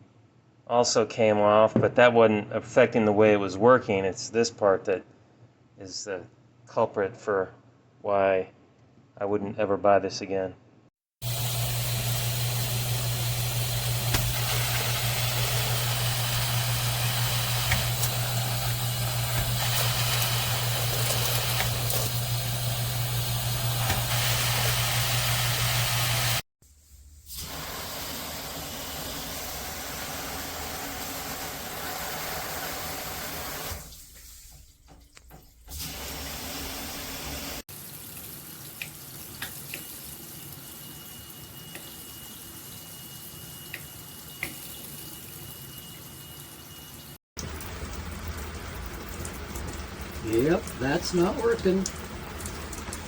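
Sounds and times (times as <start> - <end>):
water rushing from shower head: 11.2 - 26.4, 49.6 - 53.0.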